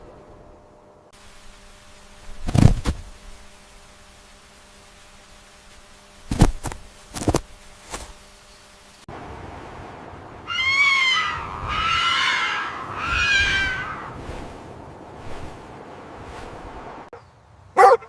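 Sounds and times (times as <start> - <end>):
animal calling: 10.5 - 14.2.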